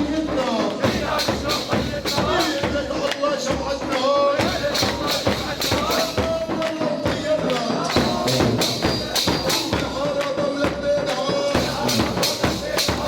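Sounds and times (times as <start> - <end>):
tambourine and hand drum beat: 0.0 - 13.0.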